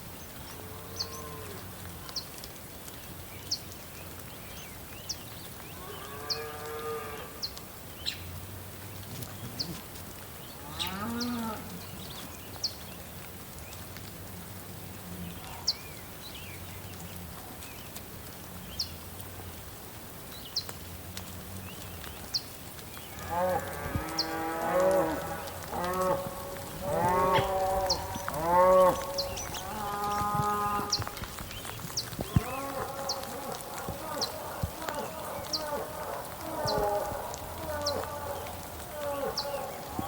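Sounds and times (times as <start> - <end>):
cattle mooing: 23.2 - 31.2, 32.3 - 39.7.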